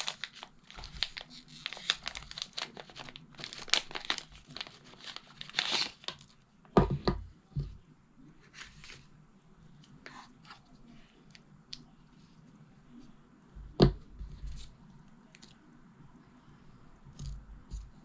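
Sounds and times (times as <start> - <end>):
wrapping crinkling and tearing: 0.0 - 6.4.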